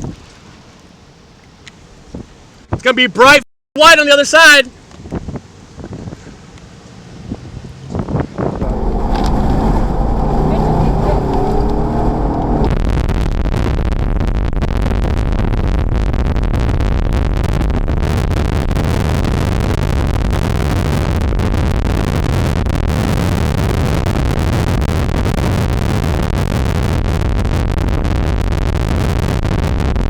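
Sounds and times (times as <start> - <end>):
vehicle driving at speed: 6.8 - 12.8
storm wind rushing: 7.3 - 16.4
muffled hum: 8.6 - 12.8.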